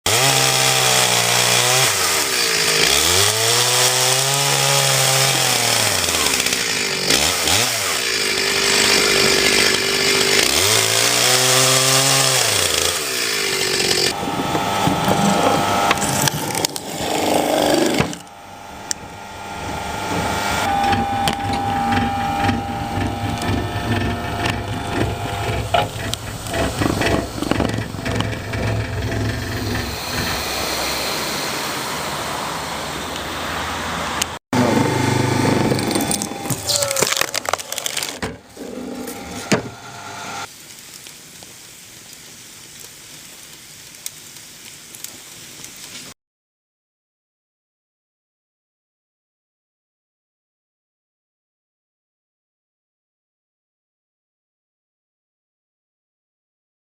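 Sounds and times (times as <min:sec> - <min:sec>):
chainsaw revving: 0:00.1 - 0:40.5
machine hum: 0:13.9 - 0:33.8, 0:34.6 - 0:40.5
scattered knocks: 0:20.1 - 0:30.5.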